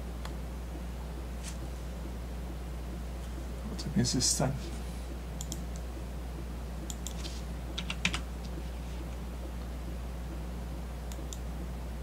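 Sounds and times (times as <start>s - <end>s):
steady low hum: 0.0s - 12.0s
computer keyboard keystrokes: 5.4s - 5.9s, 6.8s - 8.3s.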